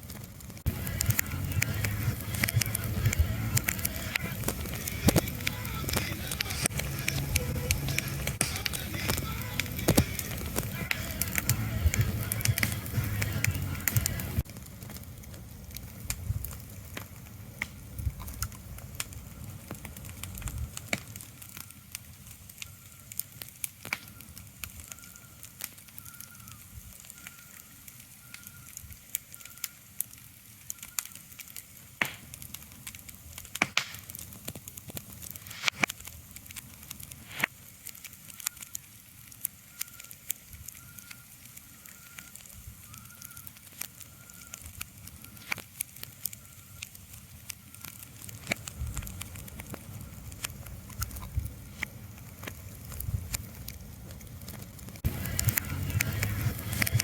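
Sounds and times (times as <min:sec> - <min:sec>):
crackling with sharp pops: 0:00.0 - 0:57.0.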